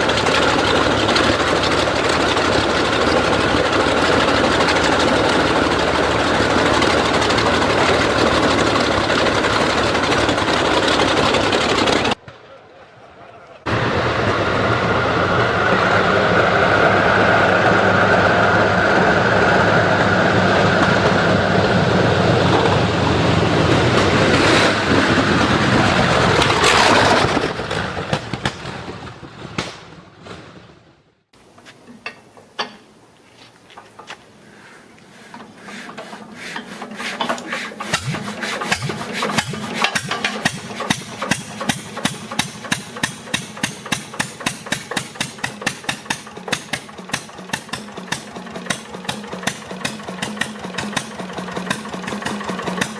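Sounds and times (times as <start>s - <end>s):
big car engine running loudly: 0.0s - 12.2s, 13.6s - 31.1s, 35.2s - 52.9s.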